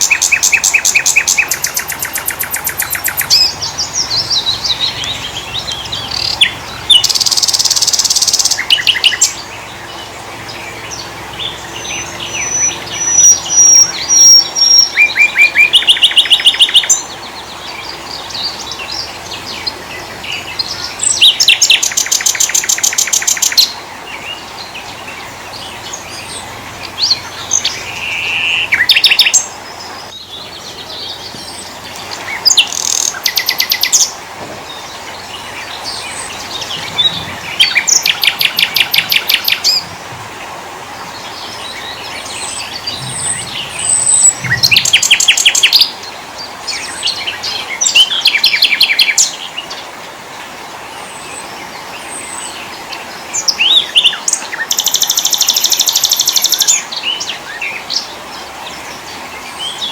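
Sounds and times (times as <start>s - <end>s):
faint bird chirps: 0.0s - 34.1s, 41.2s - 46.0s
songbird trilling: 0.0s - 40.0s, 41.1s - 49.7s, 53.4s - 58.1s.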